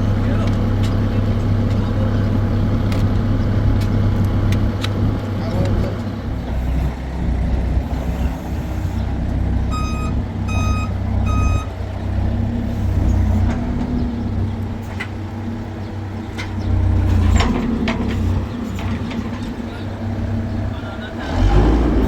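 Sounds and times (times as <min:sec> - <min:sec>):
engine low rumble: 0:00.0 - 0:22.0
short electronic beeps: 0:09.7 - 0:11.7.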